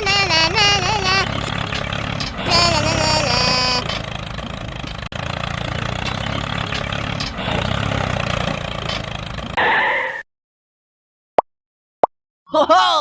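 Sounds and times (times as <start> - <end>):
small tractor motor running: 0.0 - 9.6.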